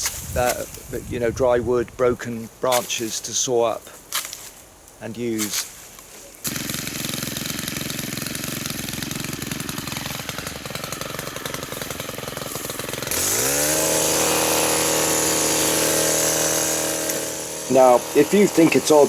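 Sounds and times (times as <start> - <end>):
hedge trimmer engine buzzing and revving: 6.4 - 19.0.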